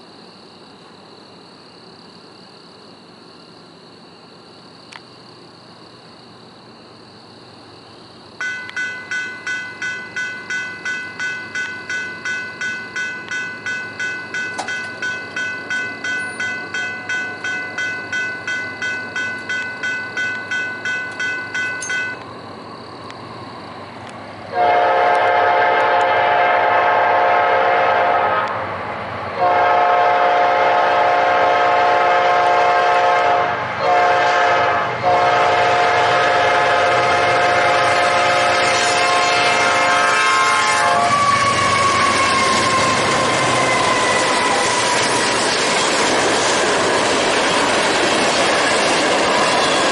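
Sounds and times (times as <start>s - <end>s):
crossing bell ringing: 8.4s - 22.3s, 49.2s - 49.9s
locomotive air horn blasts: 24.5s - 28.6s, 29.4s - 42.8s.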